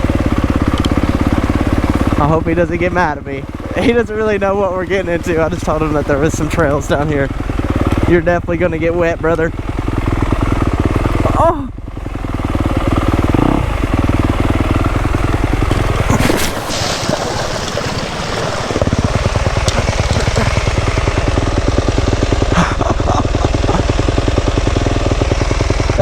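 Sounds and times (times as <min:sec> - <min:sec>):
dirt bike engine running: 0:00.0 - 0:26.0
water splashing: 0:12.7 - 0:24.1.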